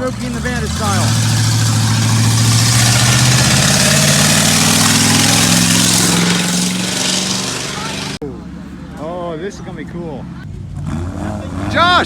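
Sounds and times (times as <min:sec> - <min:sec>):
car engine accelerating: 0:00.0 - 0:09.0.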